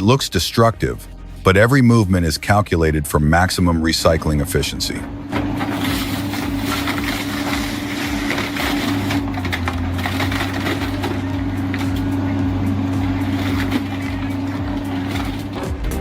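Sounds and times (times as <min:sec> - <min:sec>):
excavator engine and hydraulics: 0:00.0 - 0:16.0
grapple scraping and crunching car: 0:03.7 - 0:16.0.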